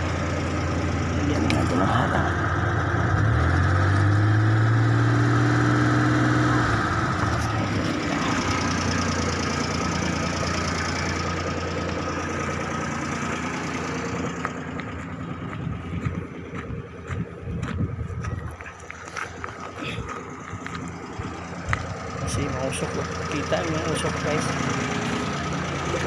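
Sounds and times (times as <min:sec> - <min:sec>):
car engine revving and idling: 0:00.0 - 0:26.0
footsteps on gravel: 0:13.2 - 0:22.0.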